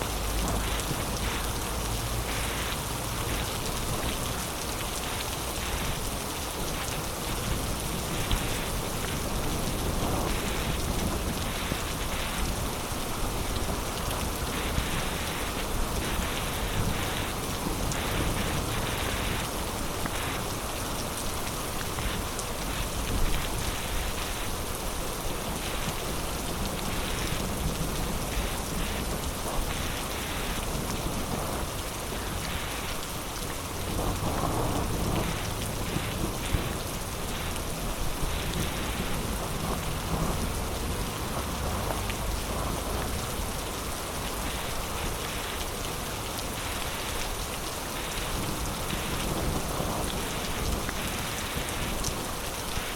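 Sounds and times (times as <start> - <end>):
heavy rain falling: 0.0 - 52.9
raindrops hitting a surface: 0.0 - 52.9
low rumble of thunder: 33.7 - 44.4, 48.4 - 52.0.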